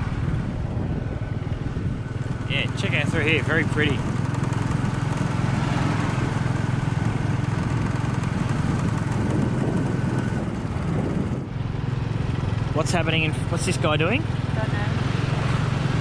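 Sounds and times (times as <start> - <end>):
motorbike engine cruising: 0.0 - 16.0
wind and road rush: 0.0 - 16.0.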